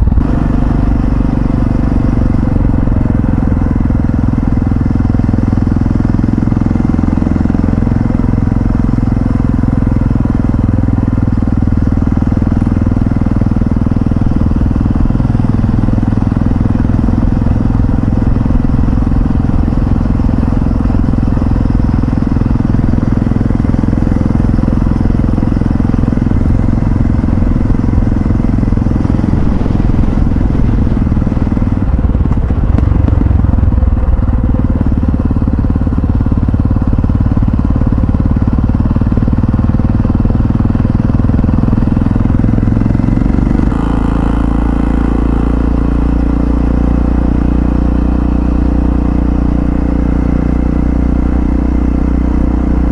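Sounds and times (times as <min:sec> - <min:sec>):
motorcycle engine rumbling: 0:00.0 - 0:52.9.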